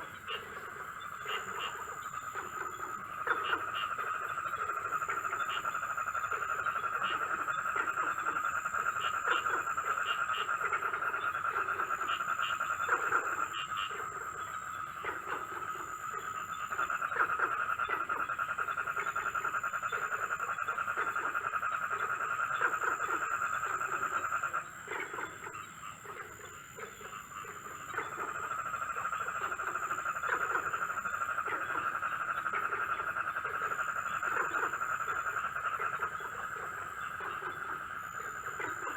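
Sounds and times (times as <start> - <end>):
frogs croaking: 0.0 - 38.9
frogs pulsing trill: 0.0 - 38.9.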